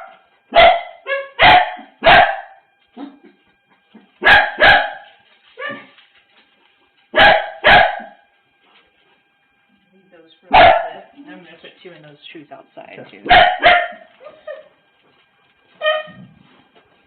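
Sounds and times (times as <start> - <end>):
dog barking: 0.0 - 3.2, 4.2 - 5.9, 7.1 - 8.2, 10.5 - 11.2, 13.2 - 14.6.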